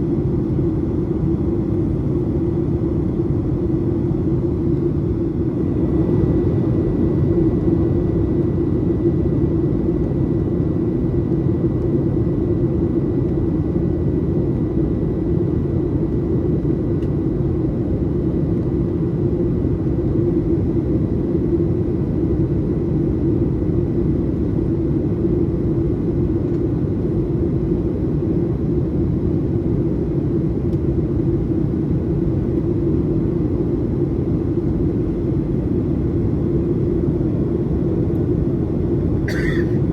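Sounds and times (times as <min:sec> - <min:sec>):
airplane cabin rumble: 0:33.4 - 0:39.9.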